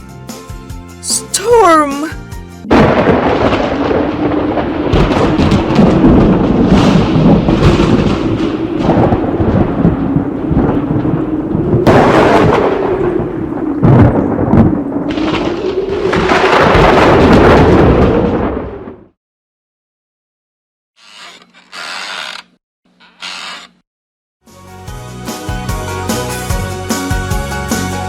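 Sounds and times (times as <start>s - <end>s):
heavy rain: 2.7s - 18.8s
loud thunder crash: 2.7s - 19.2s
rumbling thunder: 2.7s - 19.2s.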